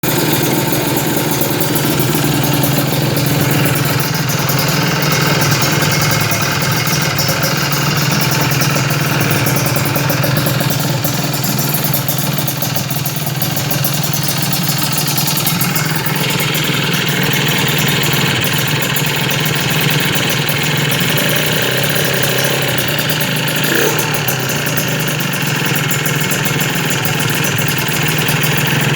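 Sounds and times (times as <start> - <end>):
motorcycle engine idling: 0.0 - 28.9.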